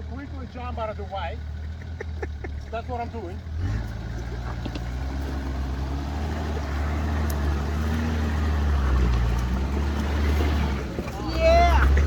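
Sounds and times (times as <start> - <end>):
vehicle engine running low: 0.0 - 12.0.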